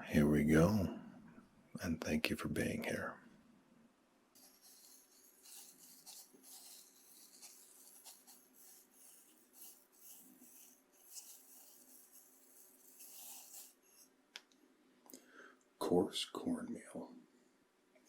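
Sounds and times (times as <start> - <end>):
cornmeal scraped on cutting board: 4.4 - 14.0.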